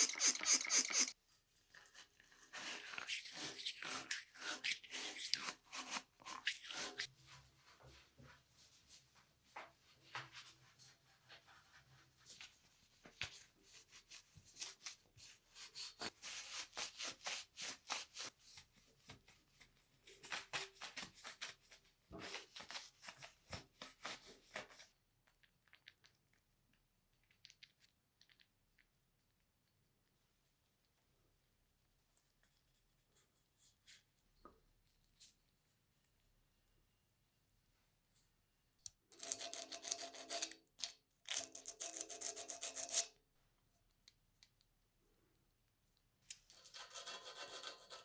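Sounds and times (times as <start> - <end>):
scratchy rubbing strokes: 0.0 - 1.2.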